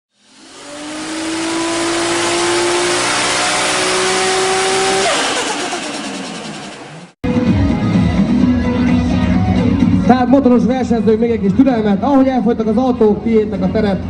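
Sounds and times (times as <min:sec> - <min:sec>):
car engine accelerating hard: 0:00.1 - 0:07.2
loud rushing noise: 0:00.2 - 0:07.2.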